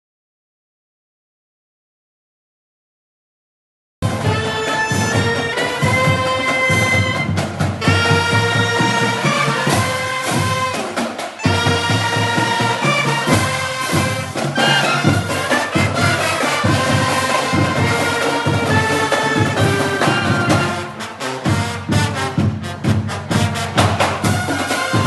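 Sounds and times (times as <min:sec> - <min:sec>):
sharp percussive strokes: 0:04.0 - 0:22.5
brass chords: 0:04.0 - 0:25.0.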